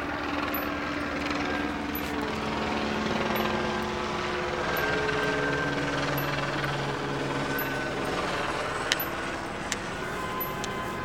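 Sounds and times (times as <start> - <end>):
helicopter rotor beating: 0.0 - 11.0.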